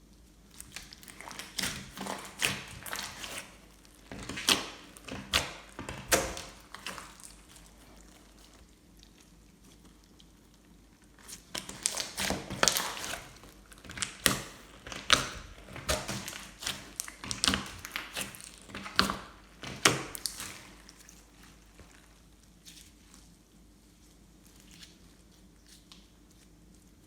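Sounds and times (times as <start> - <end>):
slime squished by hand: 0.2 - 23.4.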